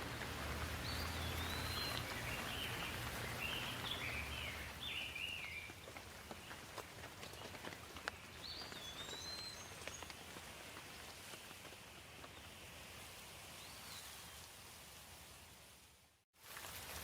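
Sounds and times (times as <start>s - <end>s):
raindrops pattering: 0.0s - 13.1s, 16.4s - 17.0s
light rain: 0.0s - 17.0s.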